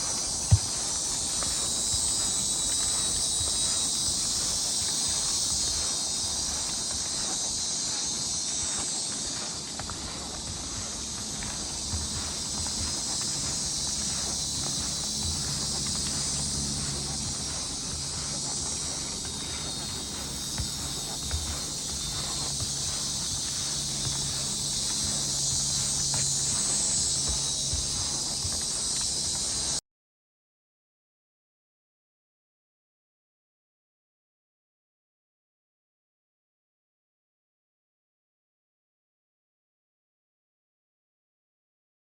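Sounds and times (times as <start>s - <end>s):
insects buzzing high-pitched: 0.0s - 29.8s.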